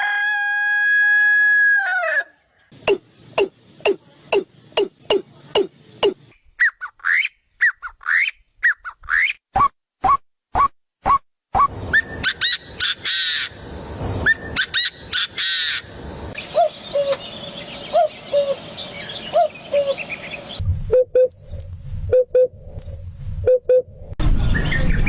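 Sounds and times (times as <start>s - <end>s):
birds chirping: 2.7s - 9.4s, 11.6s - 23.8s.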